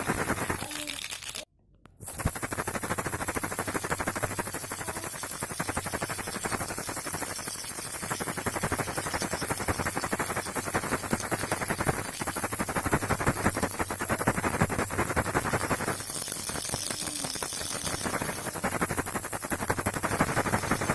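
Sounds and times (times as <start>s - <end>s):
baby rattle shaken rapidly: 0.0s - 20.9s.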